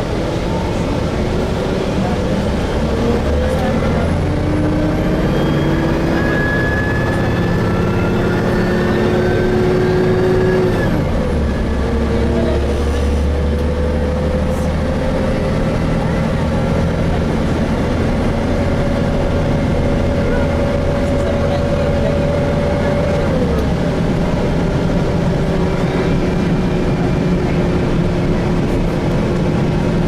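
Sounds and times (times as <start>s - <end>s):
bus drivetrain whine: 0.0s - 30.0s
low engine rumble: 0.0s - 30.0s.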